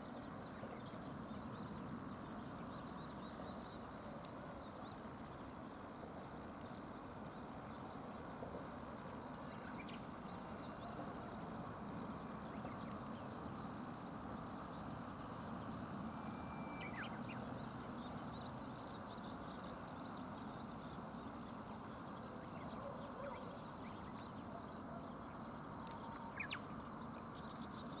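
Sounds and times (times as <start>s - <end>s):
faint bird calls: 15.6s - 20.6s, 22.3s - 28.0s.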